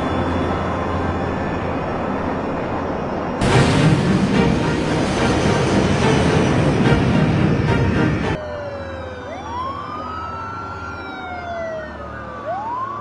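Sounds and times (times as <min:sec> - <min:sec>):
loud dense noise: 0:00.0 - 0:08.4
emergency sirens wailing: 0:00.0 - 0:13.0.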